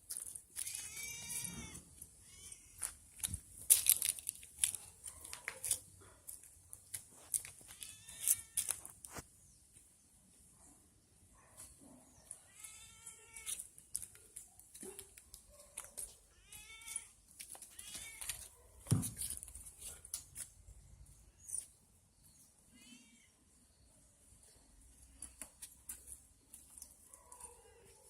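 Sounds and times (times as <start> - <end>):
cat meowing: 0.6 - 2.9, 16.4 - 17.1.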